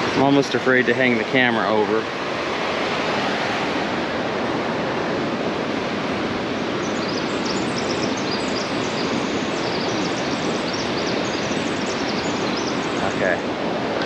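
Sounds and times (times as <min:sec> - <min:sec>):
creek whitewater rushing: 0:00.0 - 0:14.0
high bird chirps: 0:06.8 - 0:13.2.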